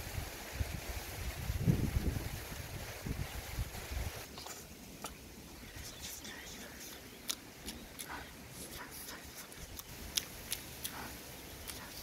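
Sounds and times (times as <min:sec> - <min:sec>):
person chewing with lip smacks: 0:06.8 - 0:12.0.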